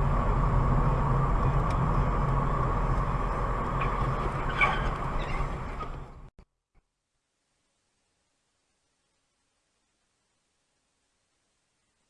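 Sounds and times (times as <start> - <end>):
vehicle engine hum and road noise: 0.0 - 6.3.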